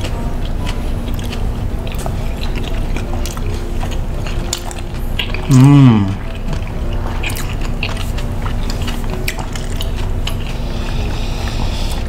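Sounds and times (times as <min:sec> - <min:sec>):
chewing with crunches: 0:00.0 - 0:12.0
person humming mmm: 0:05.2 - 0:06.5.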